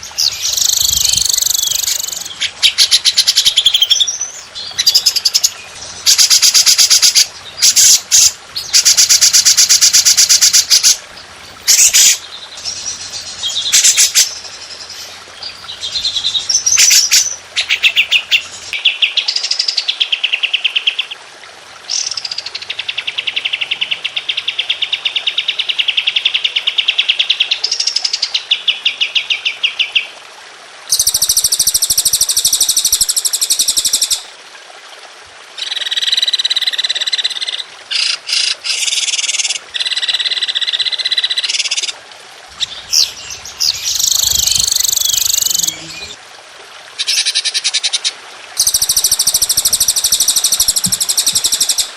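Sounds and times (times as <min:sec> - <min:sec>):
songbird trilling: 0:00.0 - 0:11.0, 0:42.6 - 0:46.2.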